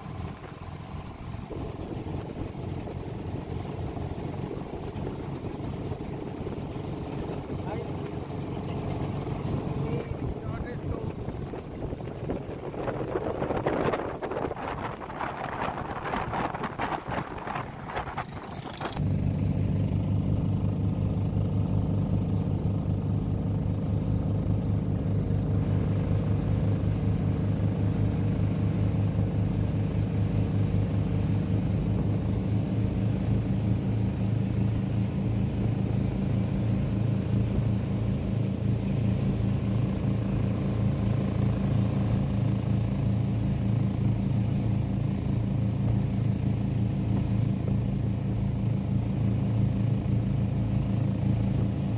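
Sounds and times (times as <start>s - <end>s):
motorboat engine droning: 0.0s - 51.9s
wind buffeting microphone: 10.0s - 19.0s.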